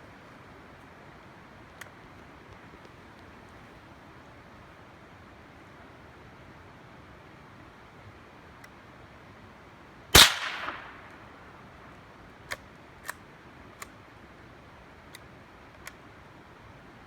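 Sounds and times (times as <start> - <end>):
close gunshot with echo: 10.2 - 11.5
faint sharp cracks: 10.2 - 11.6.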